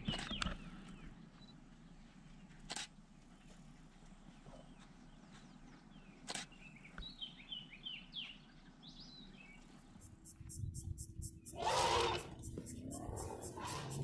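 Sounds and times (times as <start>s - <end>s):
faint bird chirps: 0.0s - 1.6s, 4.2s - 14.0s
light outdoor hiss: 0.0s - 14.0s
single click: 6.2s - 6.6s
rapid high pulsing: 10.0s - 14.0s.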